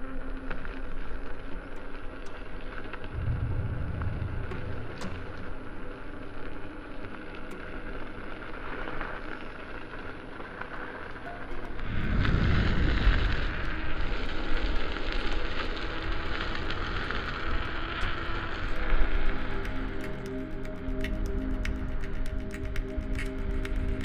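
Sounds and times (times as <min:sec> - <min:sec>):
wind on microphone: 0:03.1 - 0:06.1, 0:11.6 - 0:20.4
small clicks: 0:14.4 - 0:24.0.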